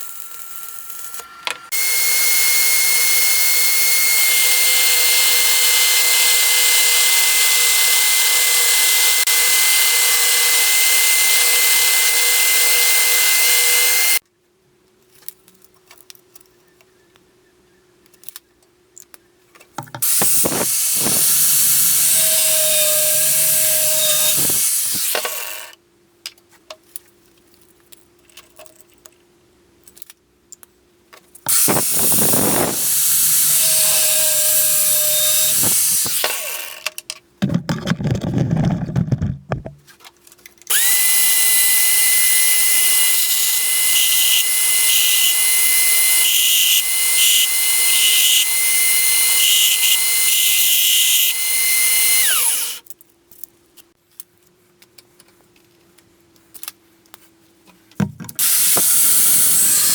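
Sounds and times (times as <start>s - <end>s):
power tool working metal: 0.0s - 14.2s, 20.0s - 25.8s, 31.5s - 36.9s, 40.7s - 52.8s, 58.4s - 59.9s.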